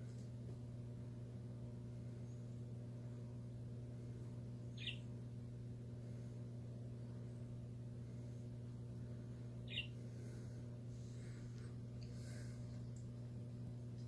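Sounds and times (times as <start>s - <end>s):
steady low hum: 0.0s - 14.0s
bird chirp: 4.7s - 5.1s, 9.6s - 10.0s.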